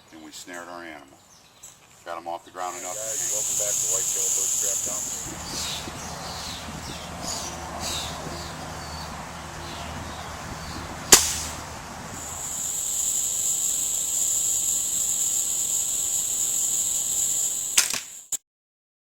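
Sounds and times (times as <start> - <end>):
insects droning: 1.7 - 9.1, 10.3 - 18.4
sharp crack: 11.1 - 11.7, 17.7 - 18.4
small click: 17.8 - 18.4.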